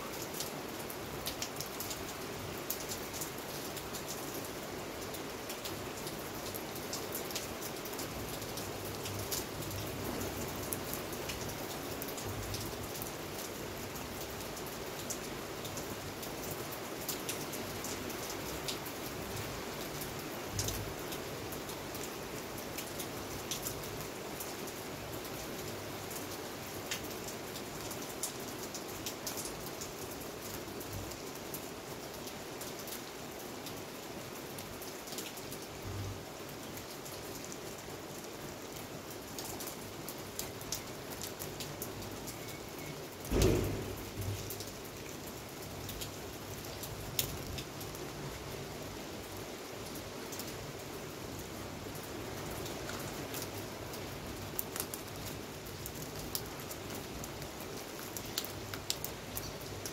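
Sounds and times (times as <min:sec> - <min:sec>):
heavy rain falling: 0:00.0 - 0:59.9
raindrops ticking: 0:39.4 - 0:45.2, 0:45.8 - 0:47.9, 0:52.6 - 0:59.9
loud low thump: 0:43.3 - 0:44.4.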